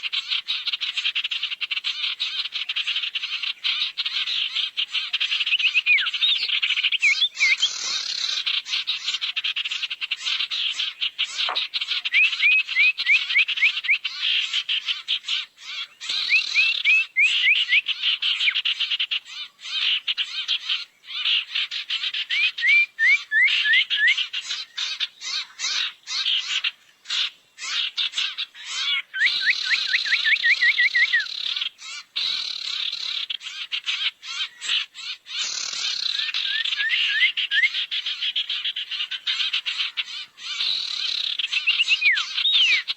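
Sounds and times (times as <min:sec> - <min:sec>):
rapid rattling bird chatter: 0:00.0 - 0:12.4, 0:31.3 - 0:36.6, 0:37.8 - 0:42.9.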